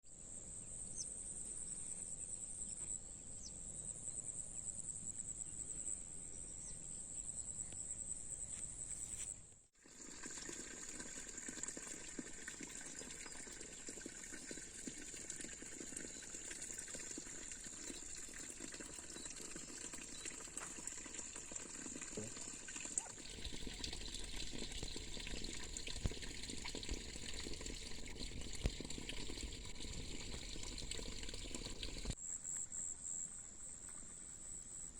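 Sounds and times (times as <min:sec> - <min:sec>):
water trickling and gurgling: 0:09.8 - 0:32.2.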